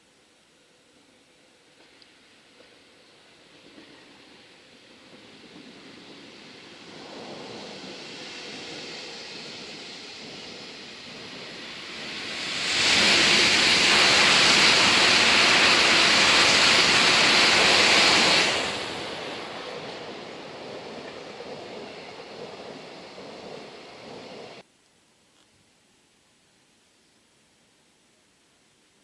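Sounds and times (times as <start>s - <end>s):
high-speed train passing: 1.6s - 24.6s.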